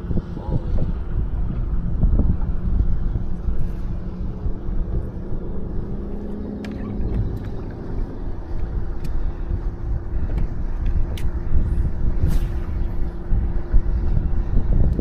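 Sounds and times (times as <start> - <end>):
boat motor running: 0.0 - 15.0
wind rumble on microphone: 0.0 - 15.0.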